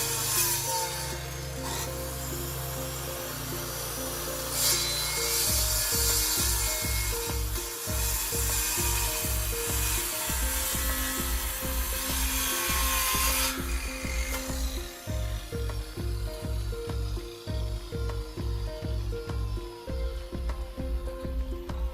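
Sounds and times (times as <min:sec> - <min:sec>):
background music with steady beat: 0:00.0 - 0:21.9
woodworking tool hissing: 0:00.0 - 0:21.9.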